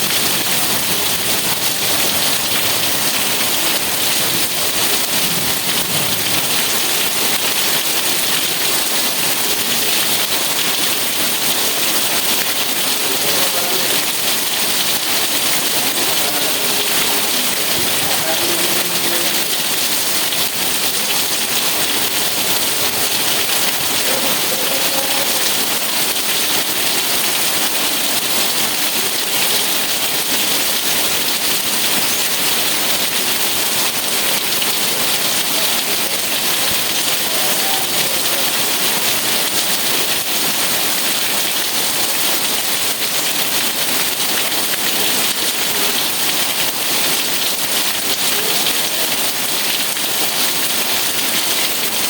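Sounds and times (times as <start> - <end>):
steady rain pattering: 0.0 - 52.0.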